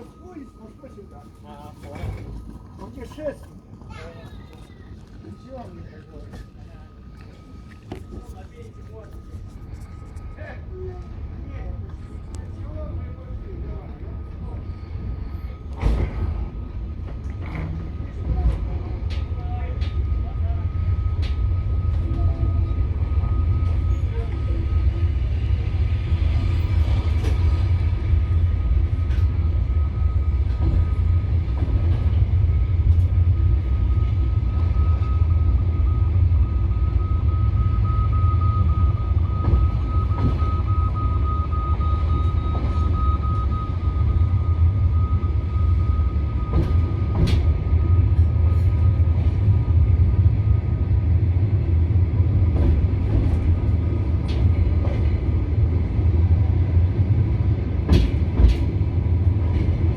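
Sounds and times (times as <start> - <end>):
thin steady whine: 0.0 - 15.8
train carriage low rumble: 0.0 - 59.9.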